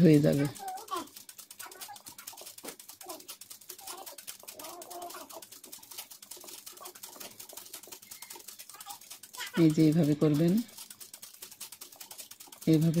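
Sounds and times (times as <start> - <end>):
sewing machine stitching: 0.0 - 13.0.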